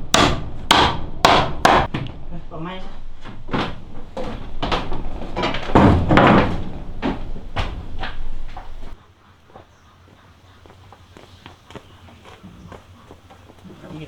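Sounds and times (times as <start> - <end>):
hammer striking wood: 0.0 - 2.2, 3.4 - 8.8.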